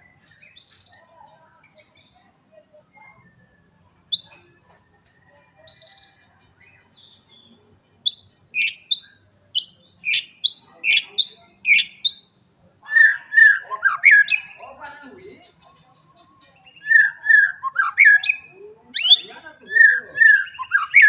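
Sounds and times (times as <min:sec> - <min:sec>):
songbird singing whistles: 0:00.0 - 0:01.0, 0:02.8 - 0:04.5, 0:05.6 - 0:14.6, 0:16.5 - 0:21.0.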